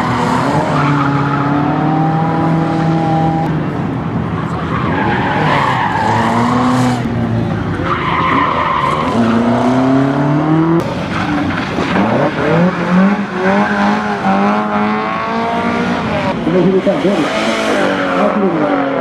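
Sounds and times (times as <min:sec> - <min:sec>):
car engine revving hard: 0:00.0 - 0:03.5, 0:09.0 - 0:19.0.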